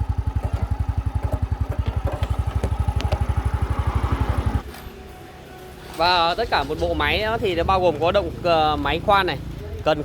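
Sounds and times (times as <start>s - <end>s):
two-stroke rock drill engine pulsing: 0.0s - 4.6s.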